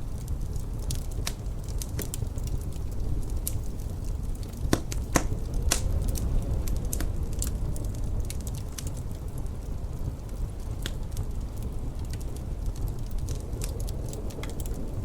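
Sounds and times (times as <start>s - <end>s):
low fire rumble: 0.0s - 15.0s
wood fire crackling: 0.0s - 15.0s.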